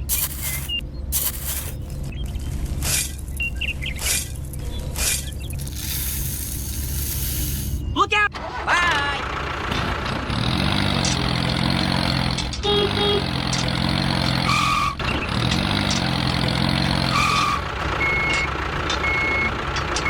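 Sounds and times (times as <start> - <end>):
thin reversing beeps: 0.0 - 1.8
vehicle engine revving: 9.2 - 19.8.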